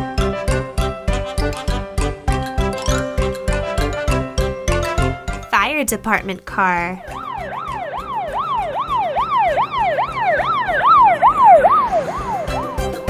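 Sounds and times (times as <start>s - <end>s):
wailing siren: 7.0s - 13.0s.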